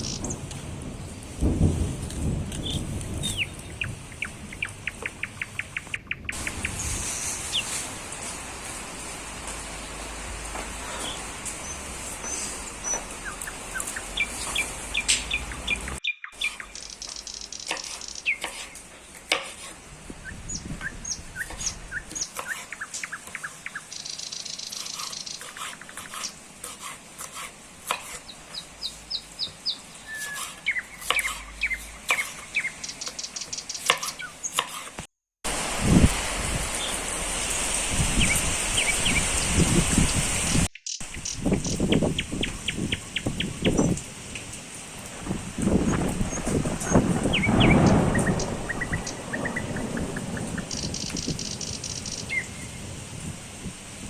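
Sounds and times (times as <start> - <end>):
small birds chirping and singing: 0.0 - 1.2, 2.5 - 7.8, 10.9 - 19.4, 20.1 - 26.4, 28.0 - 34.8, 38.2 - 44.1, 45.6 - 52.8.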